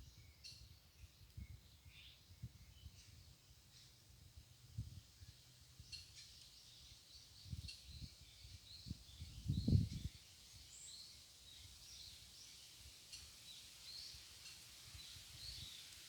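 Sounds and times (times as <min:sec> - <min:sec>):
small birds chirping: 0:05.2 - 0:16.0.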